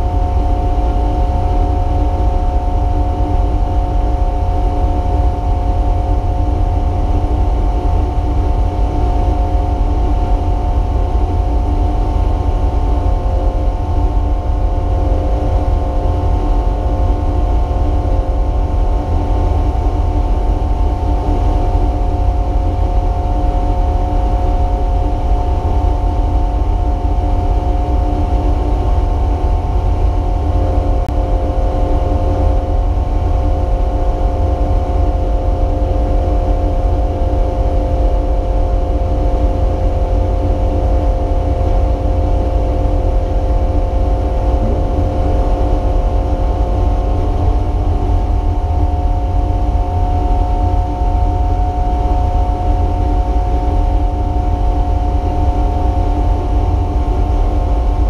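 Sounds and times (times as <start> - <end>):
race car engine running: 44.3 - 48.0.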